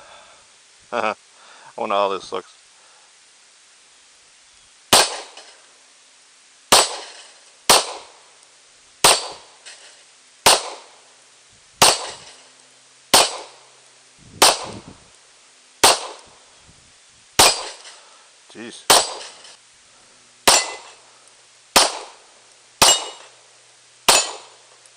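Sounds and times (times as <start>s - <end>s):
pistol shots: 4.9s - 5.5s, 6.7s - 8.2s, 9.0s - 9.6s, 10.4s - 11.0s, 11.8s - 12.4s, 13.1s - 13.6s, 14.4s - 14.8s, 15.8s - 16.3s, 17.4s - 17.9s, 18.9s - 19.4s, 20.4s - 21.0s, 21.8s - 22.2s, 22.8s - 23.4s, 24.1s - 24.6s.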